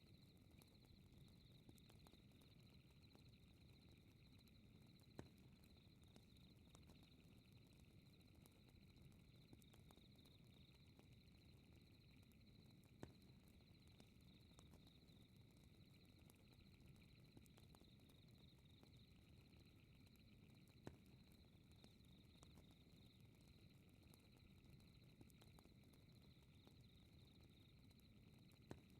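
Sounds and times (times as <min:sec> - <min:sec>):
crickets chirping: 0:13.6 - 0:28.9.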